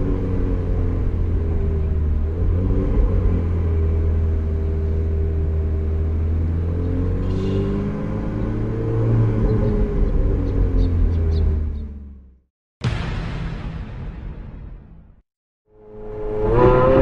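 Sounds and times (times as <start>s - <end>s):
car engine at low revs: 0.0s - 12.3s.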